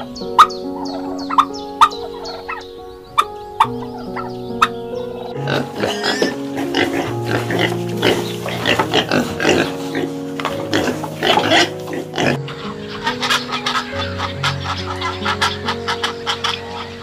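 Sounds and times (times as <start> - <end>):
background music with held notes: 0.0 - 17.0
young pigs grunting: 3.2 - 12.4.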